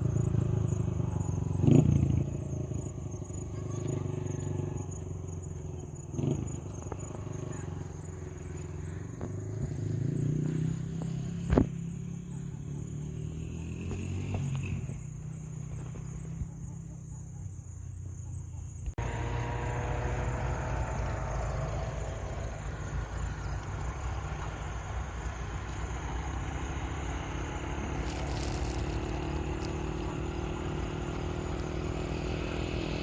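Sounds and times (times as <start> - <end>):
engine running steadily: 19.0 - 33.0.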